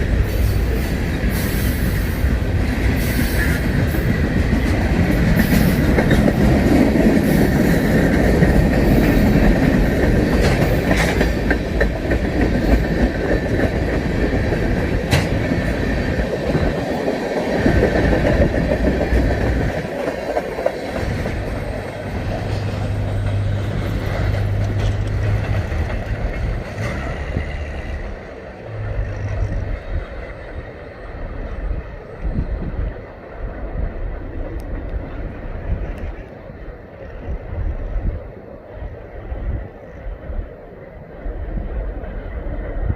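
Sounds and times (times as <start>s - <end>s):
train wheels clicking over rail joints: 0.0s - 33.1s.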